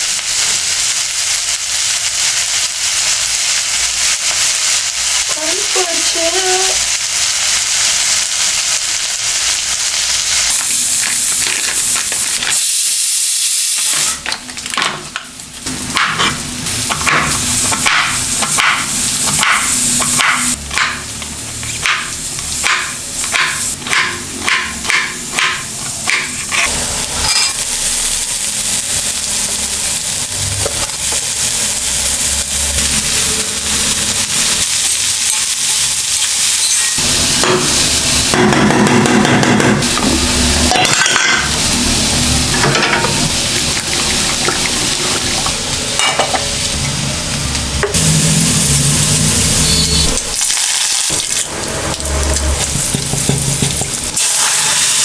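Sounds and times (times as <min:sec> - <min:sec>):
food sizzling in a pan: 0:00.0 - 0:55.0.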